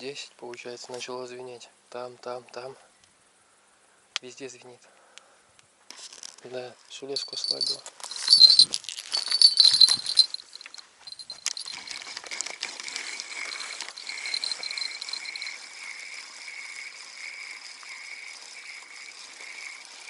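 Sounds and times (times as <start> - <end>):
bite bell jingling: 7.2 - 12.2, 13.0 - 16.0.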